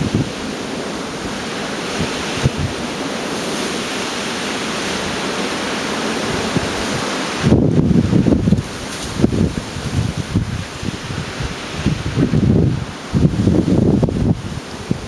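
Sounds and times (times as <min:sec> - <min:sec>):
storm wind rushing: 0:00.0 - 0:15.0
wind buffeting microphone: 0:00.0 - 0:15.0.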